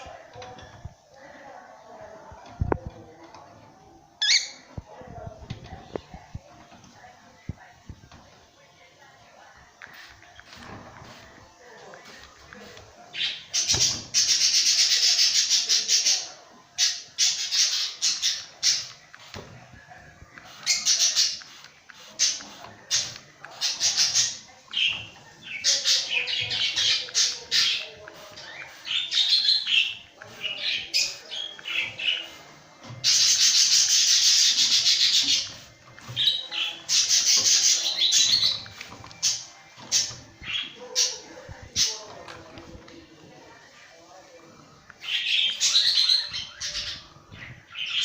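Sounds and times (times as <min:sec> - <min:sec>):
spray bottle hissing: 0:20.4 - 0:24.9.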